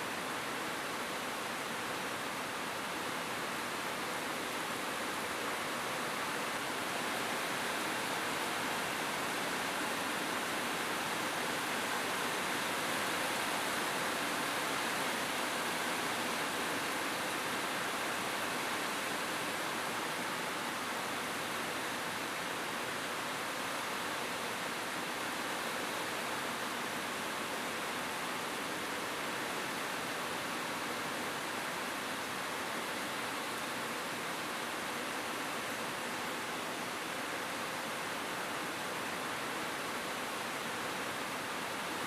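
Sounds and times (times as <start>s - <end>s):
rain on a roof: 0.0s - 42.0s.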